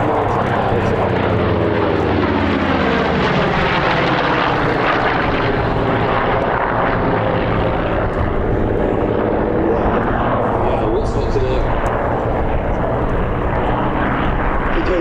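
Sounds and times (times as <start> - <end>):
propeller plane flying past: 0.0 - 15.0.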